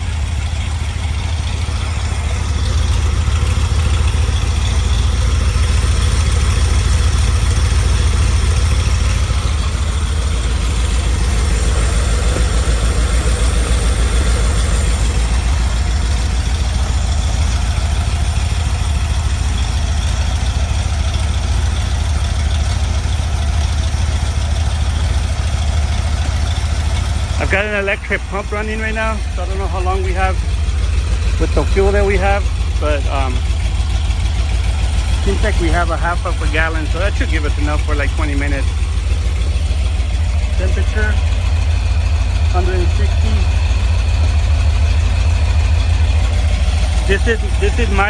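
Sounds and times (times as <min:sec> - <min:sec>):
engine idling: 0:00.0 - 0:48.0.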